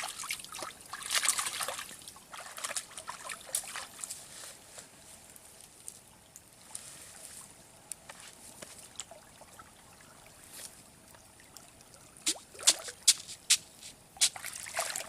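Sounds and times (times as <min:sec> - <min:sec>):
faint trickling water: 0:00.0 - 0:15.0.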